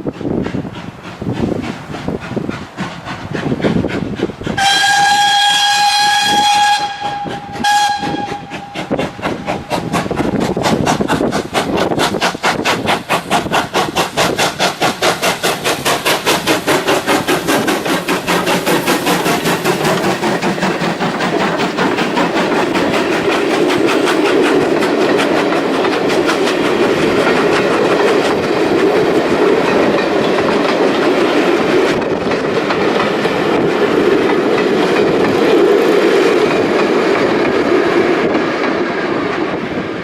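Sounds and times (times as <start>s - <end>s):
locomotive exhaust beats: 0.0s - 37.6s
steam locomotive whistle: 4.6s - 9.7s.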